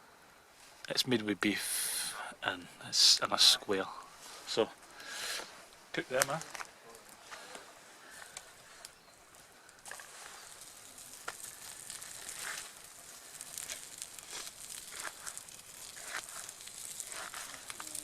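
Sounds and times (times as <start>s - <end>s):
sausage sizzling with pops: 4.2s - 18.0s.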